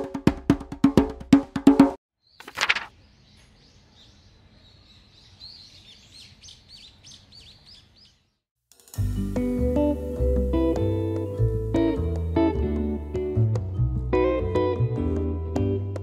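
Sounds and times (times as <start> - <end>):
small birds chirping: 2.2 - 8.4
acoustic guitar music: 9.0 - 16.0.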